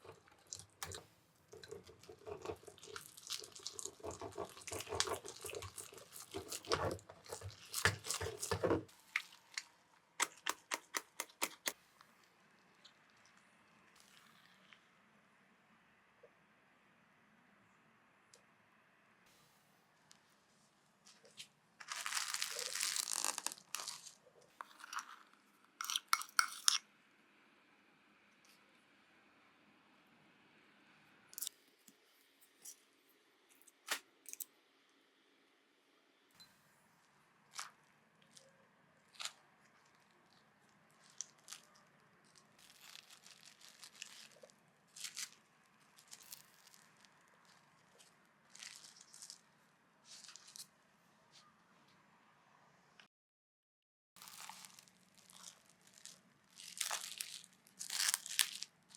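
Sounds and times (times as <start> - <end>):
scraping or crinkling: 0.0 - 11.8, 21.0 - 26.8, 37.5 - 50.7, 54.2 - 58.8.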